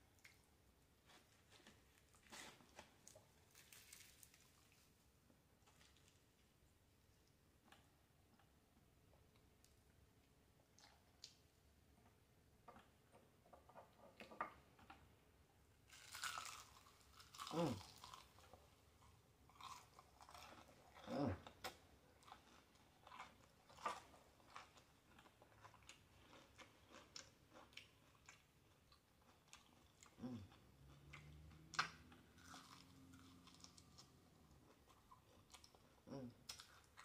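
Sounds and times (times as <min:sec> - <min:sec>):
crunching of fried breading: 0:01.0 - 0:04.9, 0:15.9 - 0:37.0
low humming voice: 0:17.5 - 0:17.8, 0:21.1 - 0:21.4, 0:36.1 - 0:36.4.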